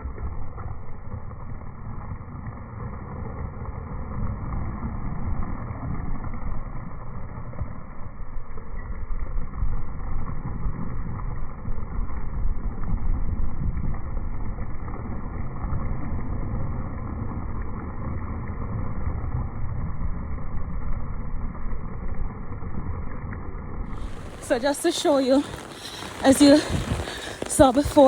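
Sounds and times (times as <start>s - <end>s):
strong wind buffeting microphone: 23.9s - 28.0s.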